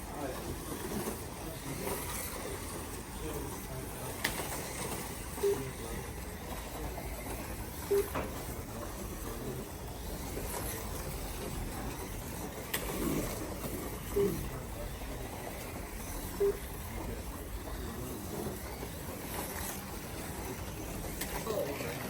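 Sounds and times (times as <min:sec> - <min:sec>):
faint background talk: 0:00.0 - 0:22.0
slot cars whirring: 0:00.0 - 0:22.0.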